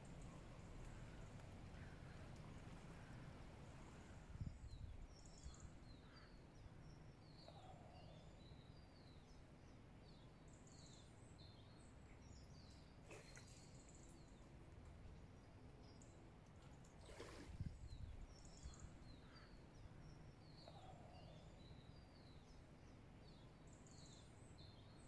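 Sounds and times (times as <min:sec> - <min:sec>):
low outdoor rumble: 0:00.0 - 0:05.1
faint songbird chirping: 0:00.0 - 0:25.0.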